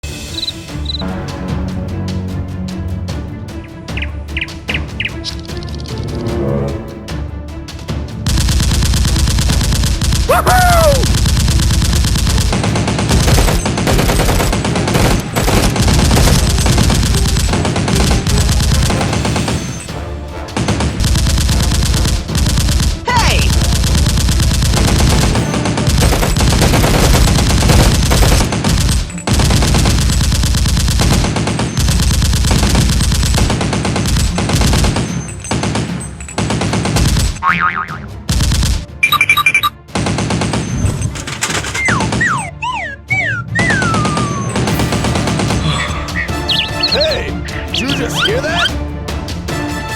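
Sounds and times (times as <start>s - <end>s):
background music: 0.0s - 49.9s
machine-gun fire: 8.3s - 19.9s, 20.5s - 37.4s, 38.3s - 38.9s, 39.9s - 42.5s, 43.6s - 45.7s.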